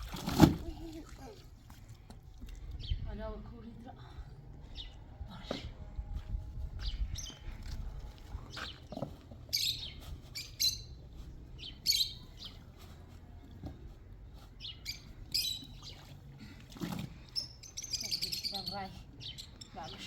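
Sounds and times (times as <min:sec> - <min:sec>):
small birds chirping: 0:02.5 - 0:03.8, 0:04.4 - 0:05.7, 0:06.8 - 0:13.2, 0:14.3 - 0:16.3, 0:17.2 - 0:20.0.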